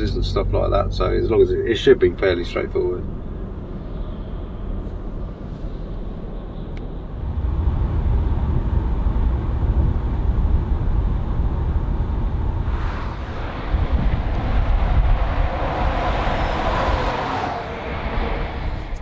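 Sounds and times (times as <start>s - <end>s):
truck engine and road rumble: 0.0s - 19.0s
road hiss: 12.6s - 18.8s.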